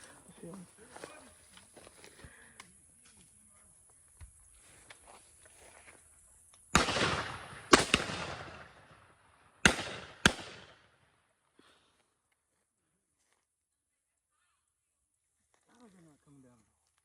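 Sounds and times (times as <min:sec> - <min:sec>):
shotgun blasts with echo: 0:06.7 - 0:11.0.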